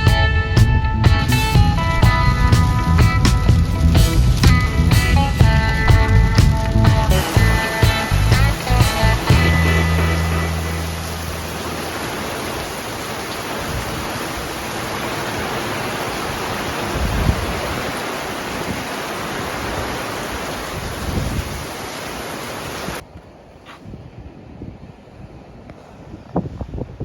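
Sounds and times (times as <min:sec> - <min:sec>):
low thumps: 0:00.0 - 0:11.9
wind noise: 0:00.0 - 0:27.0
rushing water: 0:01.1 - 0:23.1.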